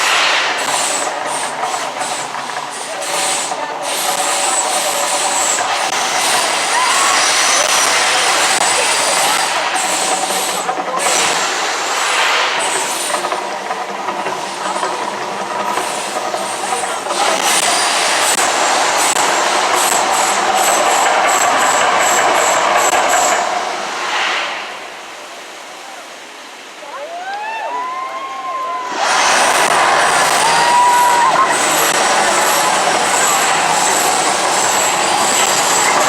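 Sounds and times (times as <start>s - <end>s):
loud roaring rumble: 28.8s - 36.0s.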